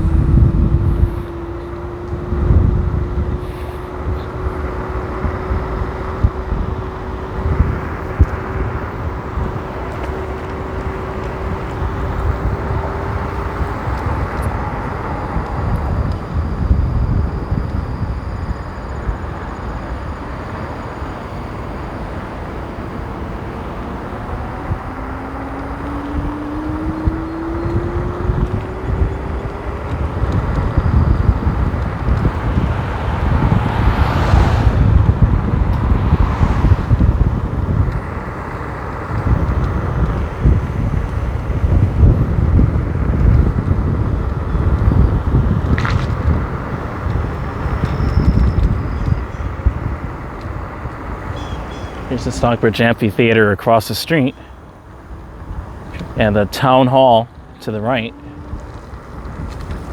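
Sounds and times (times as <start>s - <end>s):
whine rising in pitch: 0.0s - 38.3s
wind on microphone: 0.0s - 53.0s, 54.3s - 59.9s
thin steady whine: 0.0s - 59.9s
tyre noise on wet road: 0.0s - 59.9s.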